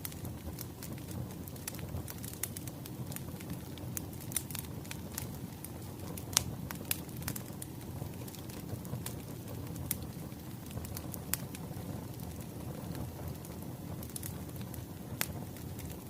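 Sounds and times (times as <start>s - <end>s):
low rumble of burning logs: 0.0s - 16.0s
wood fire crackling: 0.0s - 16.0s.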